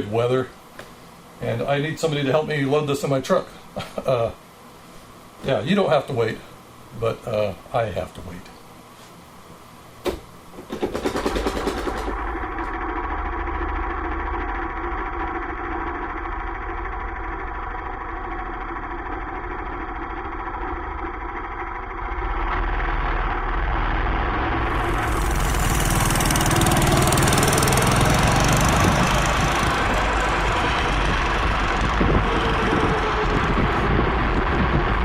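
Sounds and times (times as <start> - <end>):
go-kart engine running: 10.7 - 35.0.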